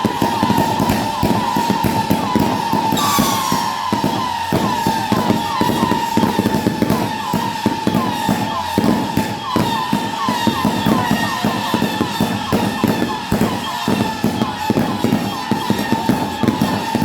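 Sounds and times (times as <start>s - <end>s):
fireworks bangs and crackles: 0.0s - 17.0s
high tone with short chirps: 3.0s - 4.0s.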